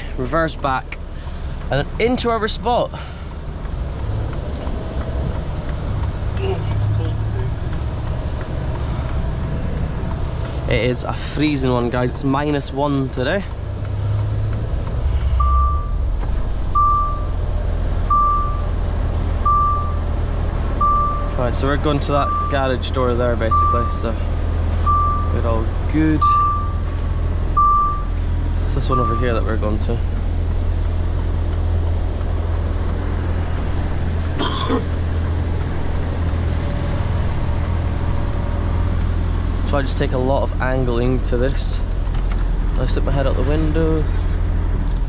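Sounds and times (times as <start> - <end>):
diesel engine rumble: 0.0 - 45.0
reversing alarm beeping: 15.3 - 17.4, 18.1 - 18.7, 19.4 - 20.0, 20.8 - 21.4, 22.2 - 22.6, 23.5 - 24.0, 24.8 - 25.4, 26.2 - 26.9, 27.6 - 28.1, 28.9 - 29.4.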